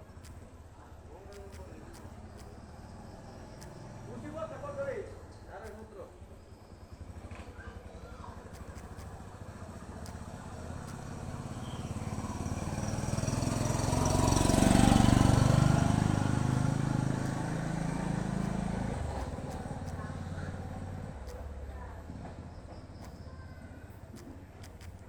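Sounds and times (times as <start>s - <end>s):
vehicle engine passing: 1.1s - 5.2s, 7.9s - 23.4s.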